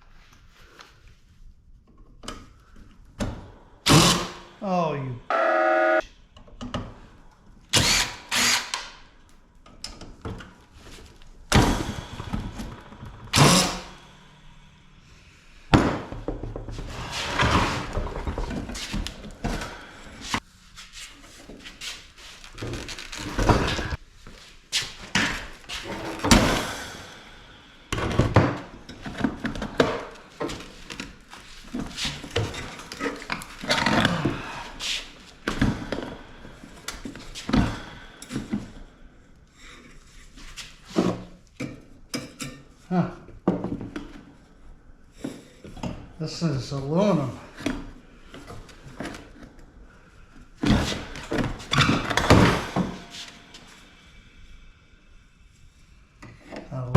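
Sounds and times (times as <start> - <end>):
short electronic bleep: 5.3 - 6.0.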